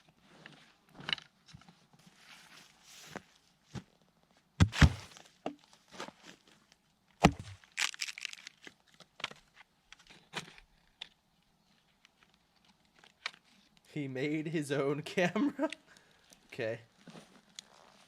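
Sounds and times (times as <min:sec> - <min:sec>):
heavy knocks on wood: 0:04.6 - 0:05.1
wood cracking and clicking: 0:07.2 - 0:09.4.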